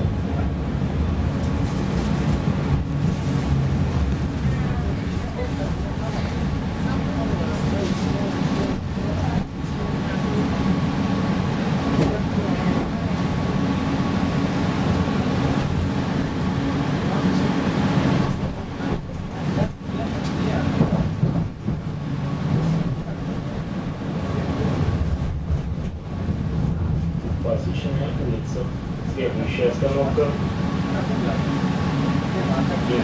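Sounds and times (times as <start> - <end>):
tram wheels rumbling on rails: 0.0 - 33.0.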